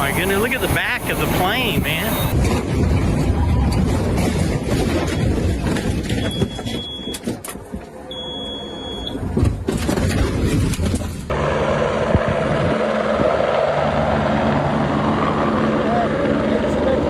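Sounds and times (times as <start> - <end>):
aircraft engine noise: 0.0 - 4.1, 11.3 - 17.0
wind rushing on microphone: 0.0 - 7.8, 11.7 - 17.0.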